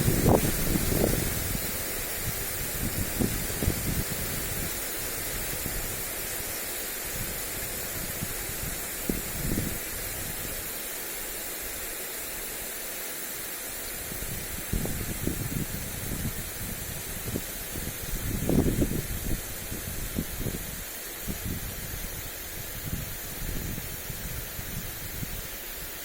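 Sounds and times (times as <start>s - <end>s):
wind rumbling on microphone: 0.0s - 10.7s, 14.0s - 26.0s
sprinkler spraying water: 0.0s - 26.0s.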